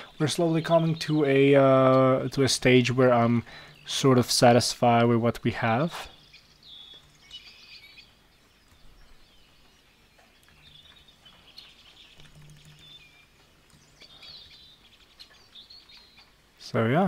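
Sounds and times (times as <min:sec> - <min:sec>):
faint bird chirping: 0:00.0 - 0:17.0.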